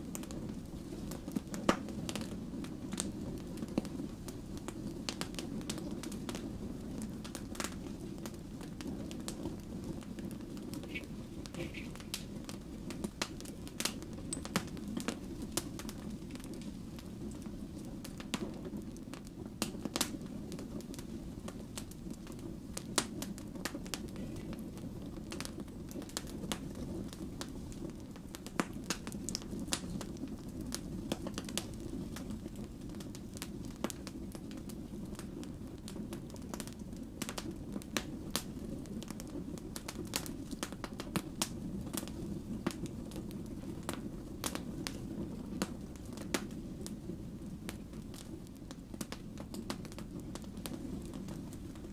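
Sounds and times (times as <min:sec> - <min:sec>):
low rush of flame: 0:00.0 - 0:51.9
wood fire crackling and popping: 0:00.0 - 0:51.9.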